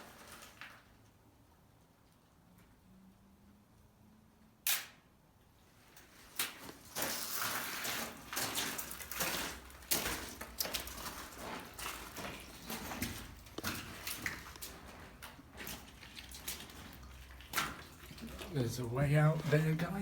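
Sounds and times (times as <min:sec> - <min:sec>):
footsteps on gritty floor: 0:06.2 - 0:20.0.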